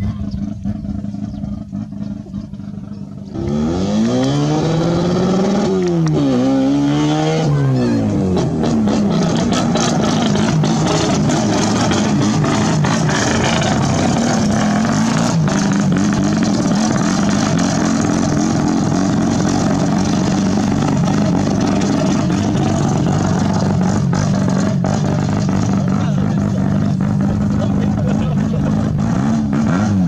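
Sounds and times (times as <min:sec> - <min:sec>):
rotary engine running: 0:08.3 - 0:30.0.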